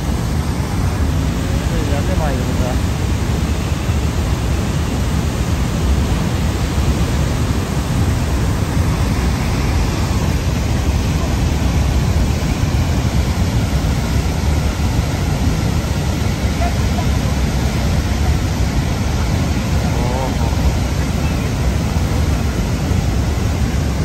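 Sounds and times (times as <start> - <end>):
loud low rushing noise: 4.8 - 16.6.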